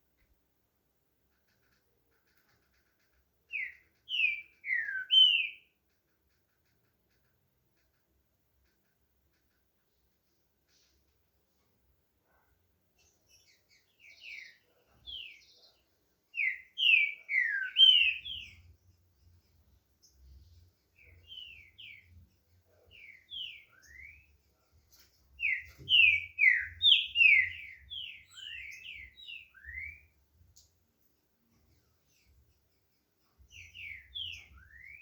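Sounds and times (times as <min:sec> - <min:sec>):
bird whistling song: 0:03.5 - 0:05.7, 0:16.4 - 0:18.6, 0:22.9 - 0:24.3, 0:25.4 - 0:30.1, 0:33.5 - 0:35.0.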